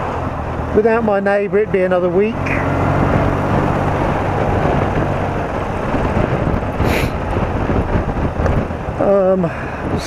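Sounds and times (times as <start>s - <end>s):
wind and road rush: 0.0s - 10.0s
brief hiss: 6.8s - 7.2s.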